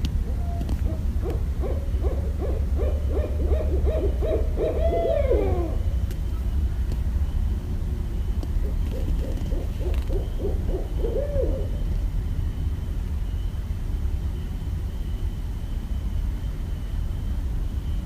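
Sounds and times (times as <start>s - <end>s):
steady low rumble: 0.0s - 18.0s
owl hooting: 0.2s - 6.5s, 8.6s - 12.1s.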